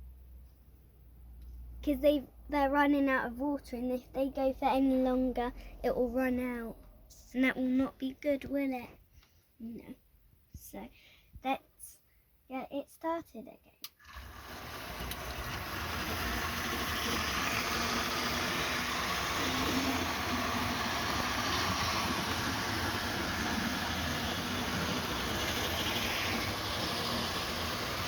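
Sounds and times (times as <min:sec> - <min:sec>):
model train rumbling on rails: 0:14.1 - 0:28.0.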